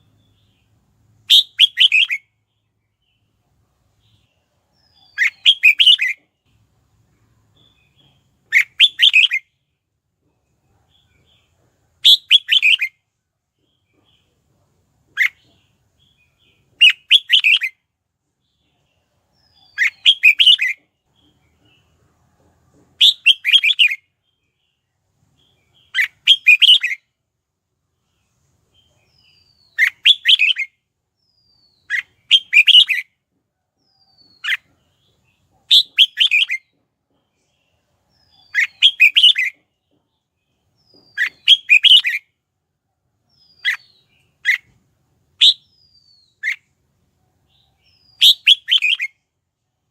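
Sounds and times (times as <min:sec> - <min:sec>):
bird chattering song: 0:00.0 - 0:03.3, 0:04.0 - 0:06.6, 0:07.5 - 0:09.7, 0:10.4 - 0:13.0, 0:15.1 - 0:17.8, 0:18.4 - 0:22.0, 0:23.0 - 0:27.0, 0:28.0 - 0:33.1, 0:33.8 - 0:42.4, 0:43.3 - 0:44.8, 0:45.4 - 0:46.8, 0:47.4 - 0:49.3.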